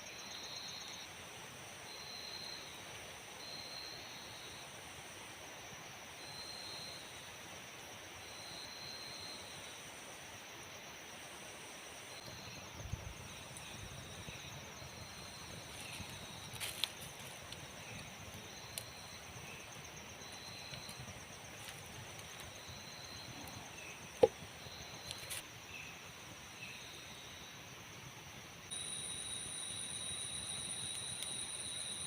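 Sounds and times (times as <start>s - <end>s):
insects chirping: 0.0s - 32.0s
insects trilling: 12.0s - 32.0s.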